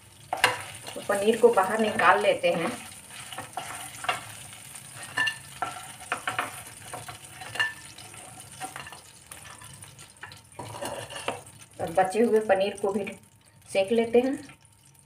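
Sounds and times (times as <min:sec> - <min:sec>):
cheese frying in hot oil: 0:00.0 - 0:15.0
spatula scraping and tapping pan: 0:00.3 - 0:11.7.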